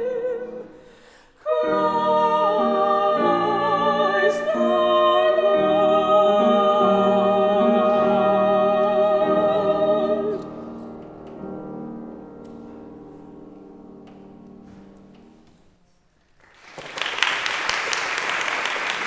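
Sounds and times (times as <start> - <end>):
soprano and mezzo-soprano duet: 0.0 - 15.7
applause: 16.4 - 19.0.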